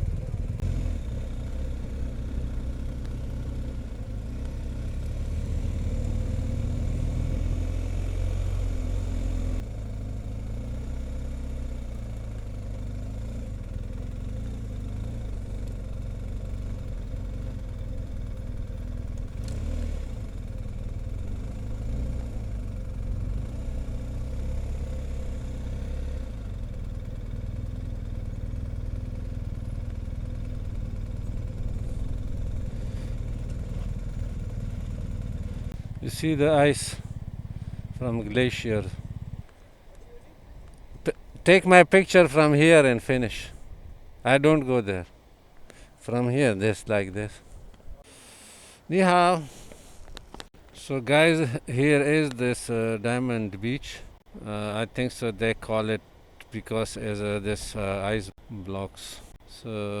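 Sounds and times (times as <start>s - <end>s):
motorcycle engine running: 0.0s - 40.8s.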